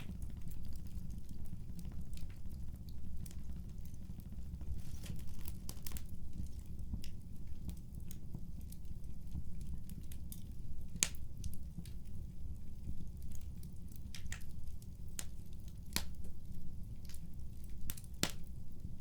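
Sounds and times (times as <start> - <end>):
fireplace crackling: 0.0 - 19.0.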